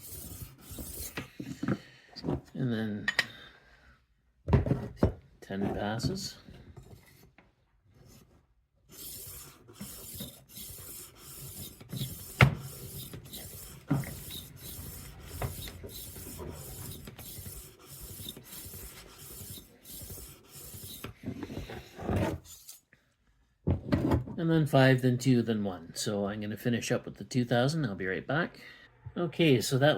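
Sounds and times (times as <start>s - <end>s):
knife sharpener scraping blade: 0.0s - 1.2s, 8.9s - 21.2s.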